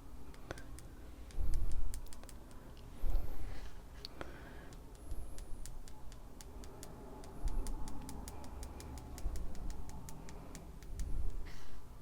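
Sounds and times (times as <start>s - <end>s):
paintbrush tapping: 0.2s - 2.7s, 4.6s - 11.5s.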